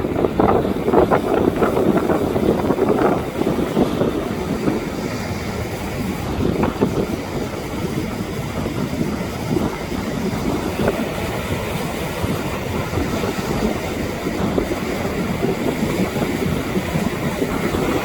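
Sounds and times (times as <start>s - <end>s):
steady rushing noise: 0.0s - 18.0s
wind buffeting microphone: 0.0s - 18.0s.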